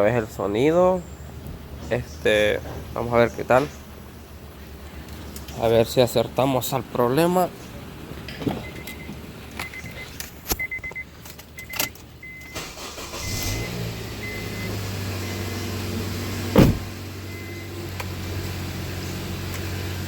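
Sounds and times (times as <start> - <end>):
car engine cranking and idling: 0.1 - 20.0
sharp knock: 16.6 - 16.9.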